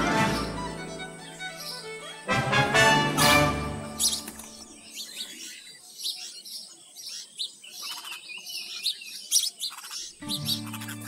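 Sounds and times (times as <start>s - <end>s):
small birds chirping: 0.0s - 2.3s, 3.8s - 11.0s
background music: 0.0s - 4.7s, 10.2s - 11.0s.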